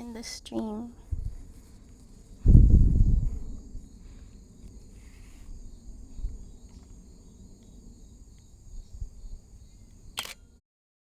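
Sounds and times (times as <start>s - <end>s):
insects trilling: 0.0s - 10.3s
soft low bumps: 0.7s - 4.0s
low rumble: 0.9s - 8.0s.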